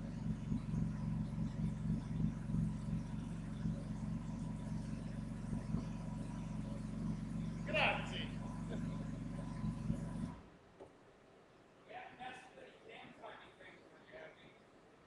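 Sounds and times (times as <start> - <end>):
car engine idling: 0.0 - 10.7.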